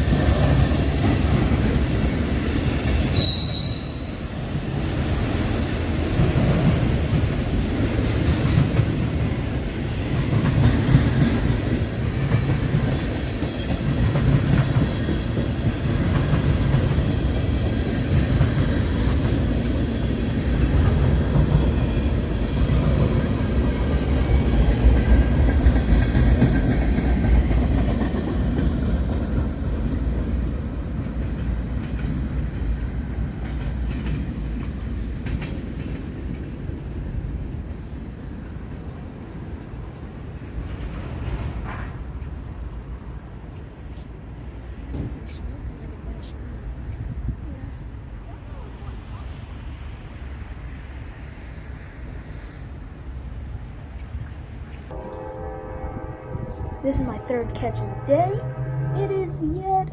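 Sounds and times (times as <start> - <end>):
high wheel squeal: 0.0 - 6.0
freight train rumbling past: 0.0 - 59.9
wheels clicking over rail joints: 6.2 - 37.0.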